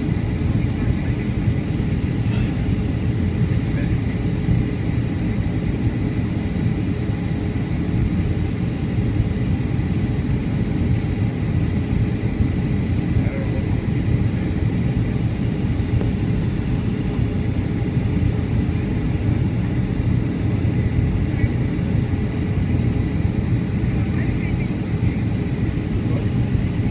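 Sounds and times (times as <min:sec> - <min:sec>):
engine and airflow rumble: 0:00.0 - 0:26.9.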